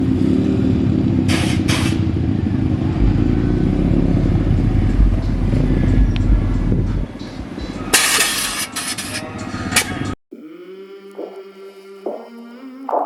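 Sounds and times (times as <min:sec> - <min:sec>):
vehicle engine rumbling: 0:00.0 - 0:10.2.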